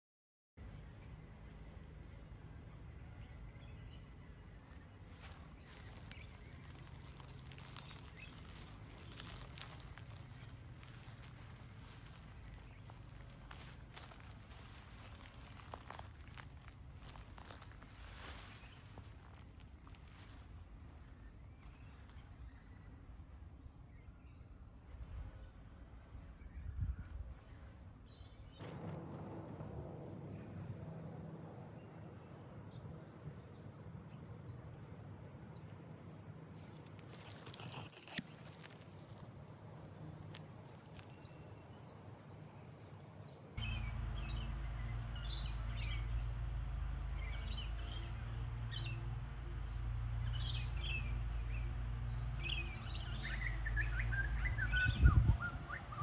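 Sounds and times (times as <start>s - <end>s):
small birds chirping: 0.8s - 29.2s
steady low rumble: 1.3s - 37.3s, 39.3s - 56.0s.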